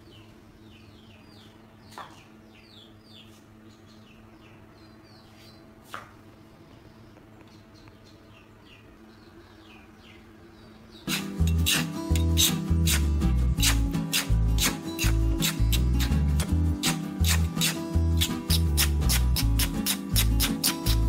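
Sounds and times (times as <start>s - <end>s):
low steady hum: 0.0s - 16.8s
small birds chirping: 0.0s - 21.0s.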